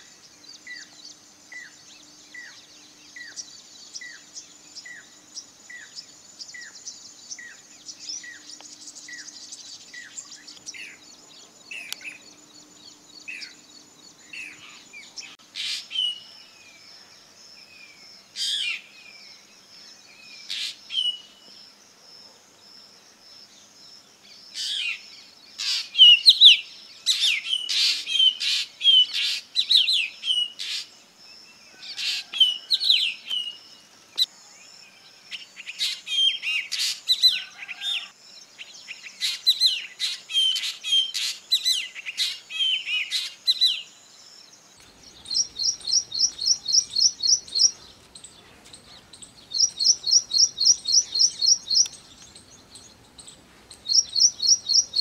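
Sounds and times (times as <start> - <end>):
bird calling with gliding notes: 44.8 - 55.0.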